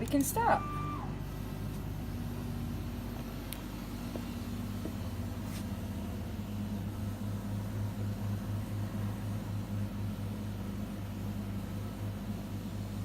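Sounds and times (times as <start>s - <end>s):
laser cutter machine hum: 0.0s - 13.0s.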